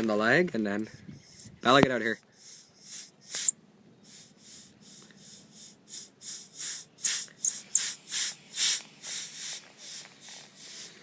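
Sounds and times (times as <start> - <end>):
compressed air hissing: 1.2 - 11.0
high squeaks: 5.9 - 7.9.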